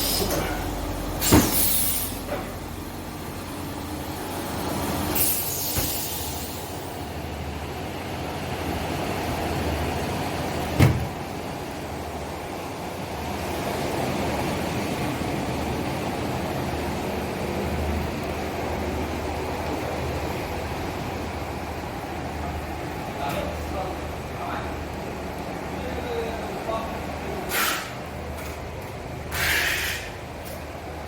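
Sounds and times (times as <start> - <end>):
air hiss: 1.2 - 2.3, 5.1 - 7.0, 27.5 - 28.0, 29.3 - 30.2.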